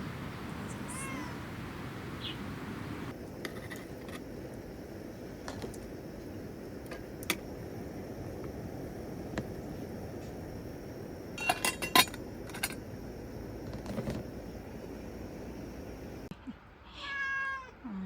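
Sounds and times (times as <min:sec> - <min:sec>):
cat meow: 0:00.9 - 0:01.4, 0:16.8 - 0:17.9.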